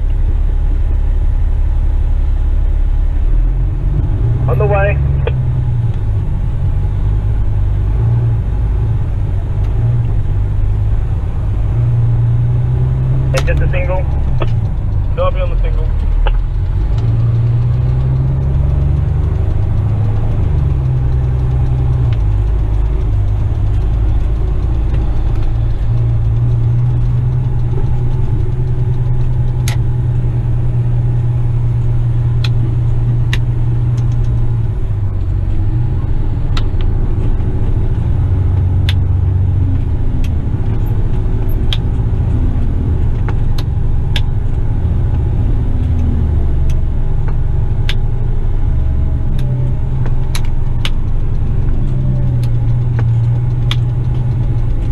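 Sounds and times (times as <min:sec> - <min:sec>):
truck diesel engine drone: 0:00.0 - 0:54.9
faint clicks: 0:49.2 - 0:54.9.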